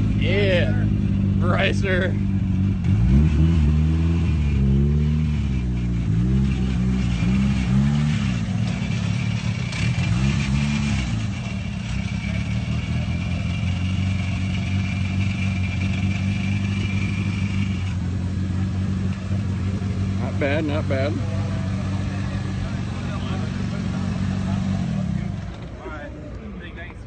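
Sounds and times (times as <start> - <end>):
car engine revving: 0.0 - 26.2
high turbo whine: 0.0 - 27.0.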